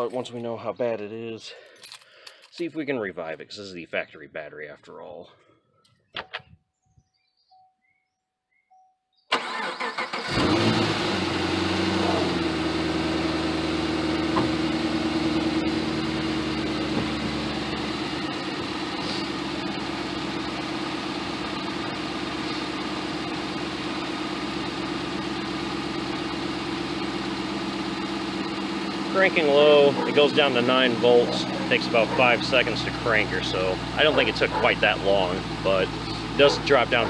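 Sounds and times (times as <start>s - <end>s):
starter motor cranking: 9.3s - 11.0s
car engine starting and idling: 9.3s - 37.0s.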